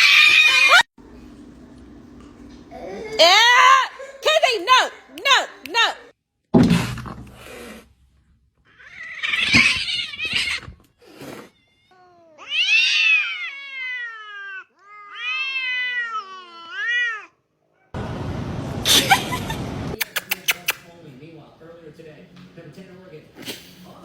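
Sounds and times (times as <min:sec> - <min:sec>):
cat yowling: 0:08.7 - 0:10.6, 0:11.4 - 0:17.4.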